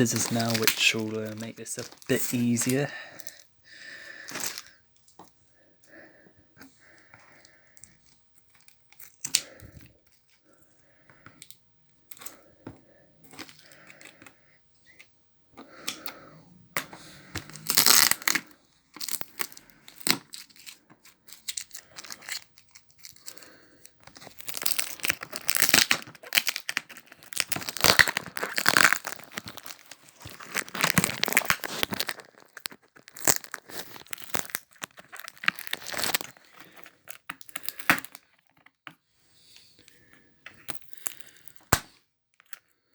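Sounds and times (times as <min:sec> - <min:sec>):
tape being cut and torn: 0:16.8 - 0:22.5.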